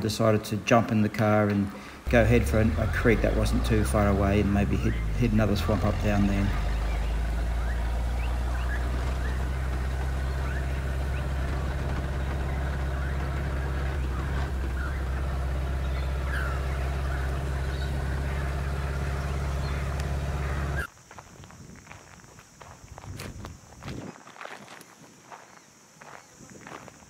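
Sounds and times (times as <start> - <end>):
vehicle engine droning: 1.4 - 20.9.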